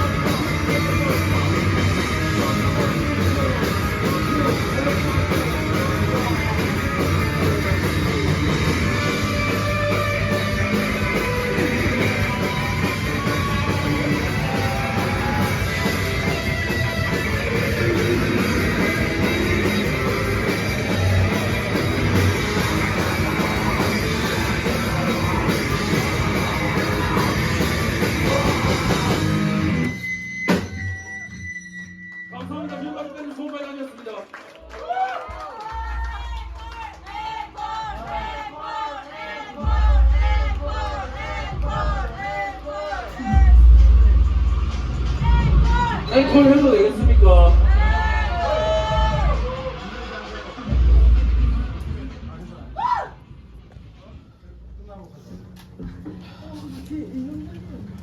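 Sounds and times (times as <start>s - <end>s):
live rock band playing: 0.0s - 31.7s.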